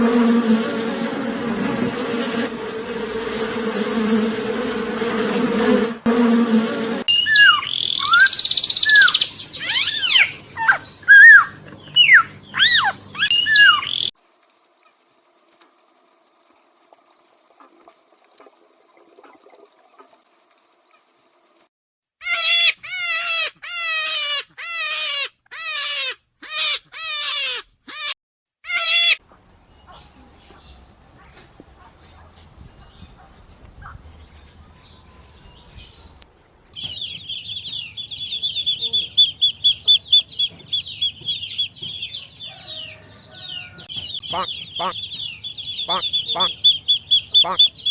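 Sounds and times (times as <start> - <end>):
high pulsed chirps: 29.6 - 36.2
fast high trill: 29.7 - 36.2.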